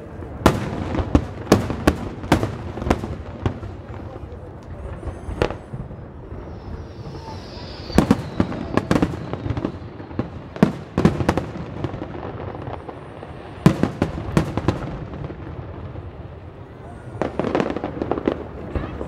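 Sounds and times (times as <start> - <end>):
fireworks bursting: 0.0 - 19.0
firework whistle: 0.5 - 14.9.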